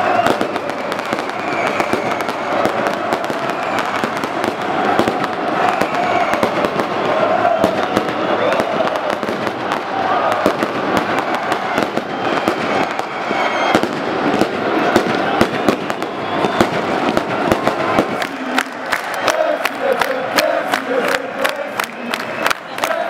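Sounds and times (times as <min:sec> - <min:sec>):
crowd voices: 0:00.0 - 0:23.0
fireworks cracking and banging: 0:00.0 - 0:23.0.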